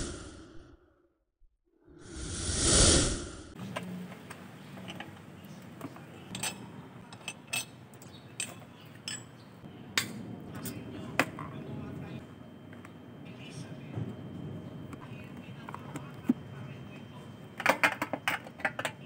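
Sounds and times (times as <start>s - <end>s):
whoosh sound effect: 0.0s - 0.5s, 2.0s - 3.6s.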